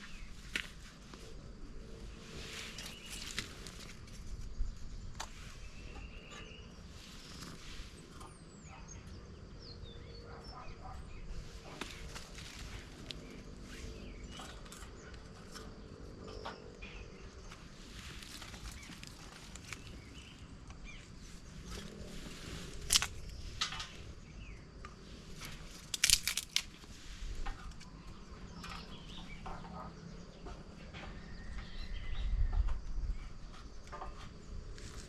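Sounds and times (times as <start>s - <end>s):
faint bird chirps: 4.5s - 11.8s.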